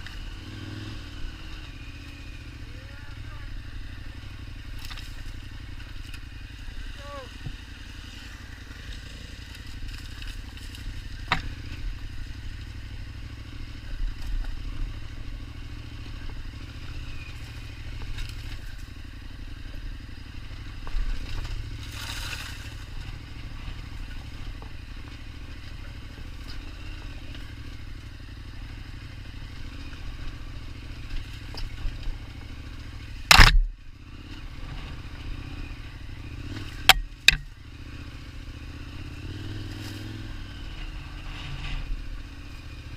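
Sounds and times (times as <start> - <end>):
motorcycle engine running: 0.0 - 42.9
bike clattering over rough ground: 30.2 - 33.8.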